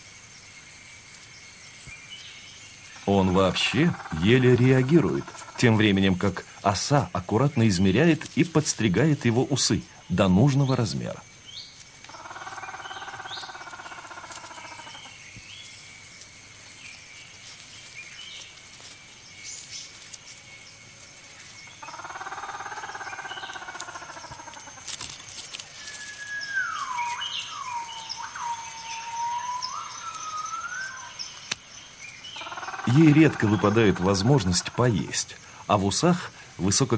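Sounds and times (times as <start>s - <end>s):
high insect drone: 0.0s - 36.9s
bird calls: 1.9s - 16.0s, 21.3s - 35.2s
whistled bird call: 25.8s - 31.2s.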